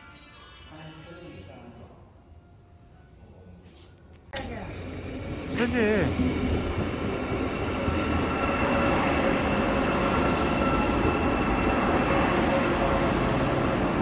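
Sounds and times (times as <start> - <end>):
train rail rumble: 4.5 - 14.0.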